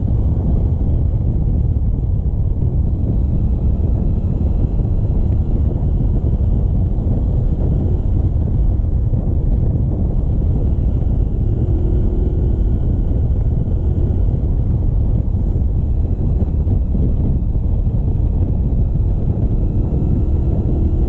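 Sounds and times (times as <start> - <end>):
motorcycle running: 0.0 - 21.0
wind rushing over microphone: 0.0 - 21.0.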